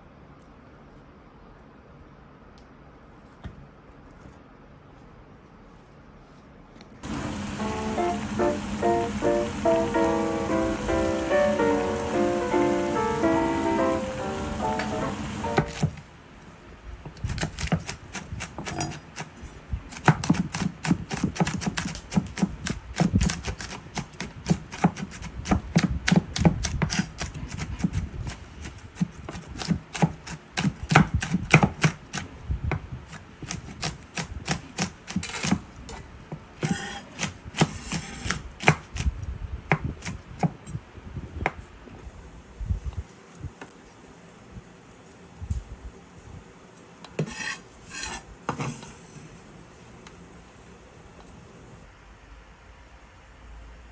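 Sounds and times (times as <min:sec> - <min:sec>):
background music: 0:07.2 - 0:15.7
knife chopping on cutting board: 0:14.6 - 0:16.0, 0:17.1 - 0:19.3, 0:19.9 - 0:35.7, 0:36.6 - 0:39.0.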